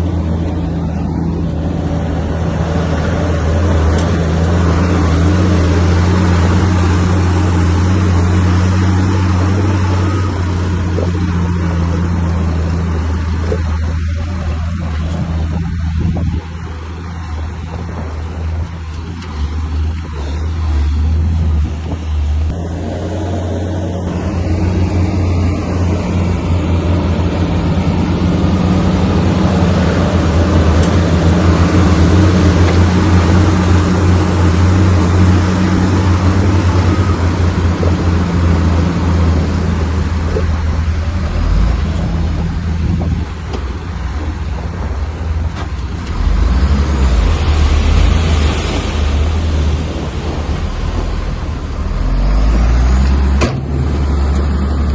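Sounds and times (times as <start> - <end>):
bulldozer engine droning: 0.0 - 54.9
heavy rushing working noise: 0.0 - 54.9.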